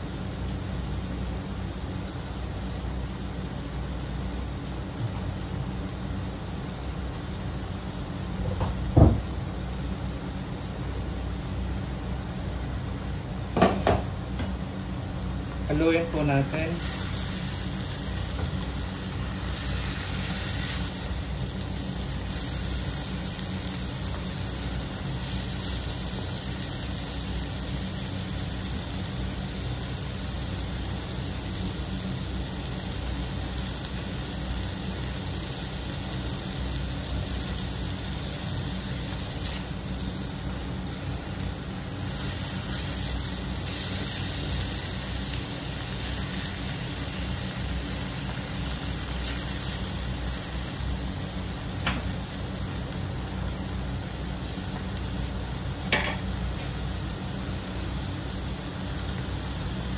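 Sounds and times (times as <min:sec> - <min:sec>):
continuous low rumble: 0:00.0 - 0:59.9
meat sizzling in a wok: 0:00.0 - 0:59.9.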